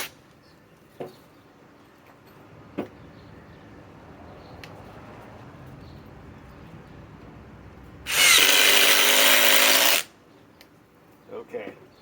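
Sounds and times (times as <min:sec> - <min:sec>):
impact driver hammering screw: 0:08.1 - 0:10.1.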